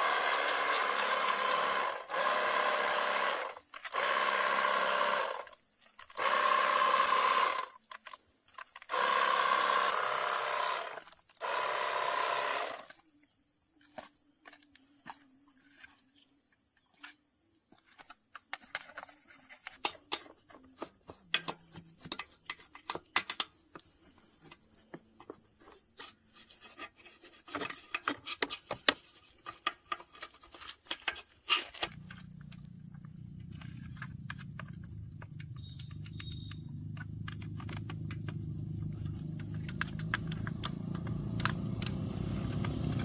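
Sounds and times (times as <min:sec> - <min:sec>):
low machine hum: 0:31.9 - 0:43.0.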